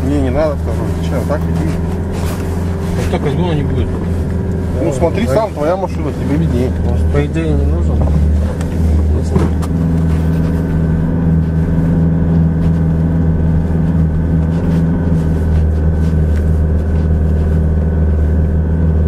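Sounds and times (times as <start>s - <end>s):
car engine droning: 0.0s - 19.0s.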